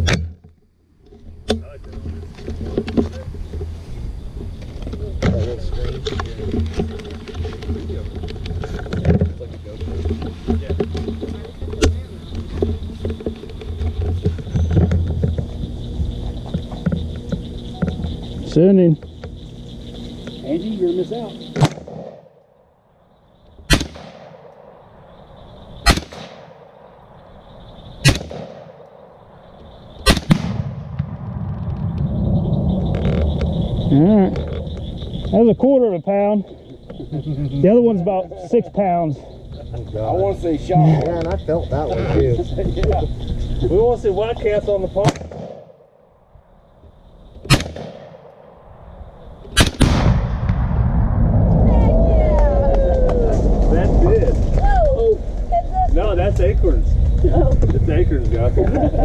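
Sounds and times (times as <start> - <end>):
rifle shots: 21.6 - 22.3, 23.7 - 24.7, 25.8 - 26.6, 28.0 - 28.8, 30.0 - 31.4, 45.0 - 45.8, 47.5 - 48.3, 49.6 - 50.9
low rumble: 28.9 - 35.4, 48.4 - 59.0.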